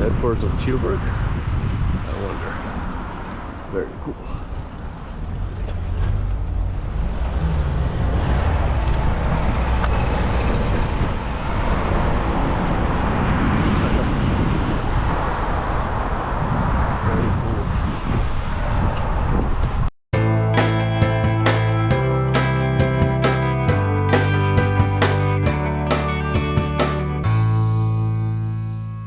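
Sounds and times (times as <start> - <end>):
city road traffic rumble: 0.0 - 17.1, 20.2 - 29.0.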